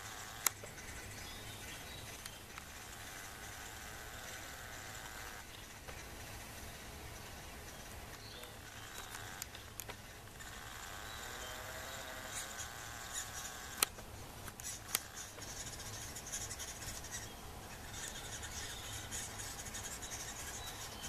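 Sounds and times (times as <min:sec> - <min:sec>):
sharp clicks: 0:00.4 - 0:00.7, 0:08.4 - 0:10.0, 0:13.4 - 0:15.7
faint high bird chirps: 0:07.1 - 0:13.8, 0:14.6 - 0:21.0.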